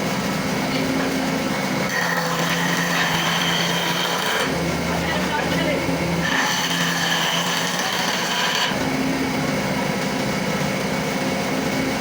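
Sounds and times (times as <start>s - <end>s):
power tool motor running: 0.8s - 9.4s.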